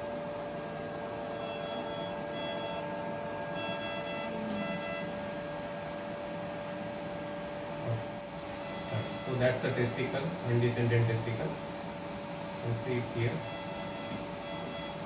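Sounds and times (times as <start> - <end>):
steady machine hum: 0.0 - 15.0
multi-tone electronic beeps: 3.6 - 5.1.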